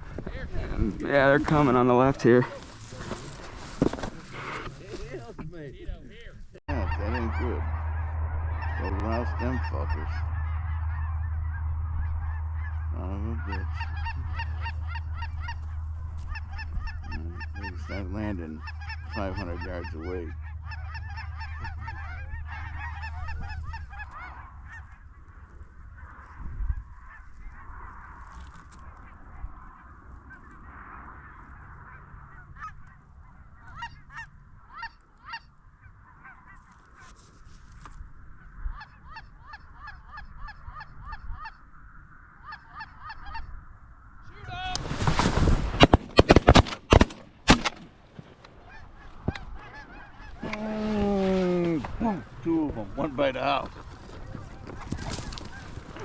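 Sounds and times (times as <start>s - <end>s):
geese honking: 0.6s - 5.4s, 6.7s - 43.6s, 44.4s - 56.0s
goose moan: 49.6s - 52.5s.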